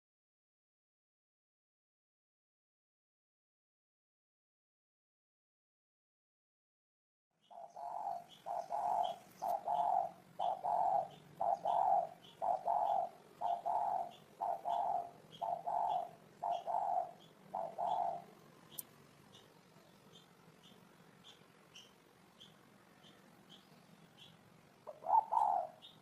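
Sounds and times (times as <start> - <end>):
dove cooing: 7.4 - 20.2, 24.8 - 26.0.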